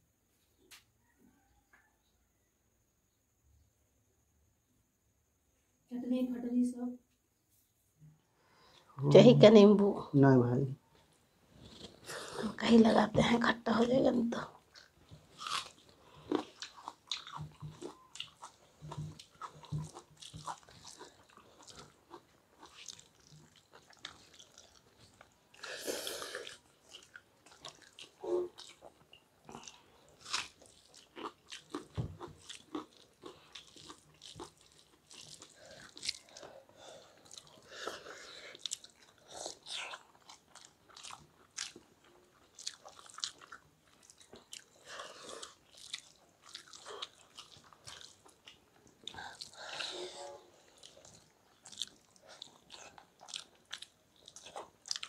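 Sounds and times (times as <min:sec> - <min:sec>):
wet chewing: 0:14.6 - 0:55.0.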